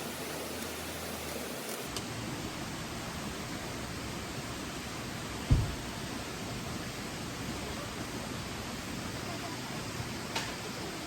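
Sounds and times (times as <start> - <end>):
steady hiss: 0.0 - 11.0
short low thump: 5.5 - 5.8.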